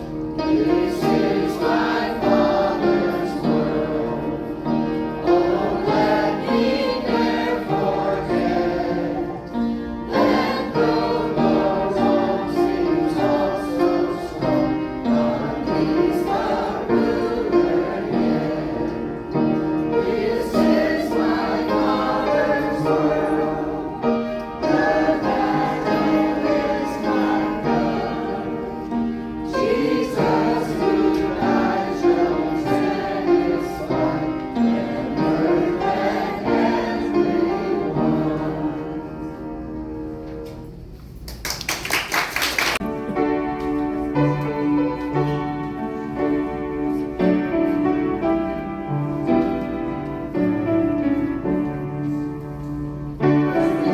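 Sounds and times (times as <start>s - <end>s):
choir singing: 0.0s - 40.4s, 53.2s - 53.9s
piano accompaniment: 0.0s - 53.9s.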